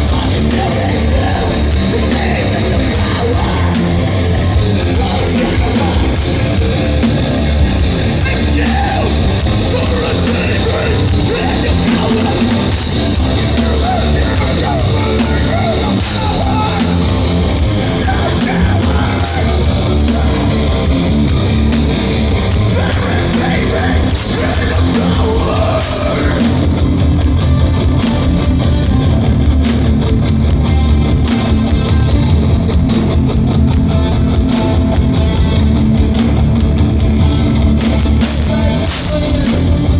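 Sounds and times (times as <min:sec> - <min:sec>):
bass guitar: 0:00.0 - 0:39.9
distorted guitars: 0:00.0 - 0:39.9
drums: 0:00.0 - 0:39.9
shouted vocals: 0:08.1 - 0:20.9, 0:22.6 - 0:26.9.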